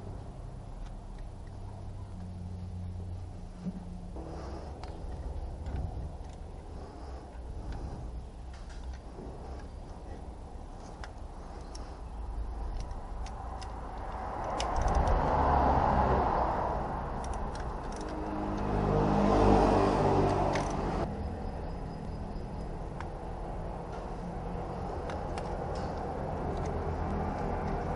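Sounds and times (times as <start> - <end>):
engine hum: 0.0 - 27.9
motor vehicle rumble with hiss: 0.0 - 27.9.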